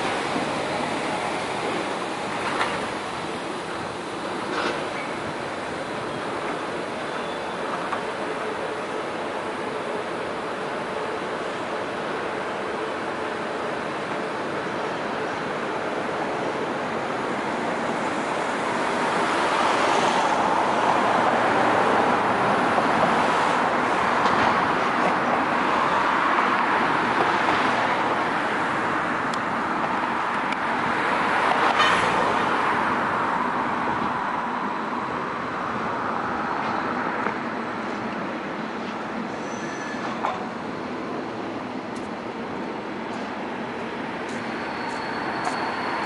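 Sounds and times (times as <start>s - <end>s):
train rolling over tracks: 0.0s - 46.0s.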